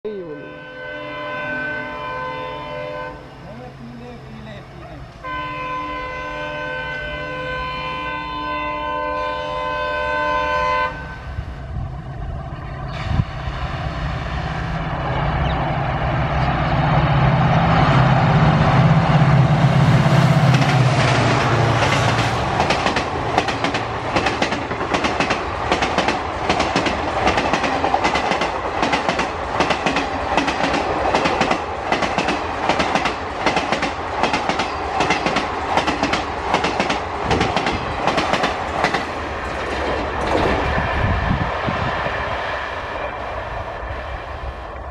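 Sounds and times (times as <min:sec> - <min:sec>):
diesel locomotive engine: 0:00.1 - 0:44.9
train wheels clacking over rail joints: 0:20.5 - 0:41.1.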